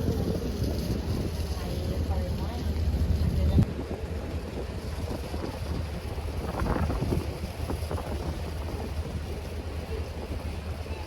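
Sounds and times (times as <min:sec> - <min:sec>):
boat engine rumbling: 0:00.0 - 0:11.0
wind buffeting microphone: 0:00.0 - 0:11.0.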